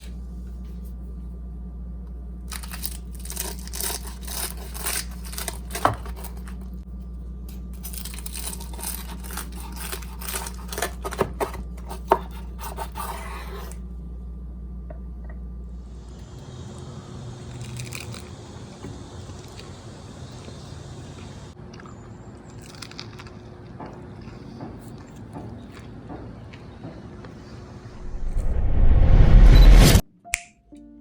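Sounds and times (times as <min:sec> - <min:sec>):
steady low hum: 0:00.0 - 0:30.1
crisp crackling and crunching: 0:02.5 - 0:06.8, 0:07.5 - 0:12.2, 0:17.5 - 0:20.6, 0:21.6 - 0:25.2.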